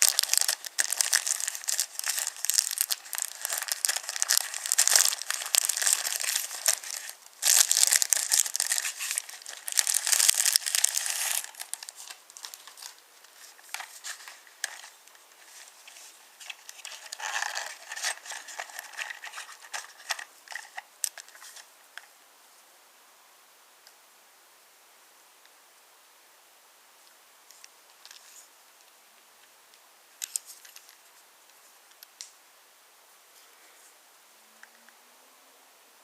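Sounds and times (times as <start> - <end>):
crinkling and crackling: 0.0 - 22.1, 30.2 - 31.2.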